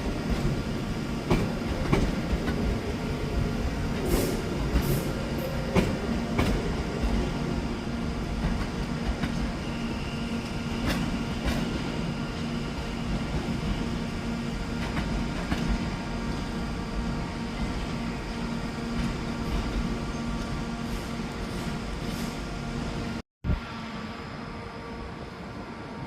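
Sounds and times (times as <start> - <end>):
train rumble and hum: 0.0 - 26.0.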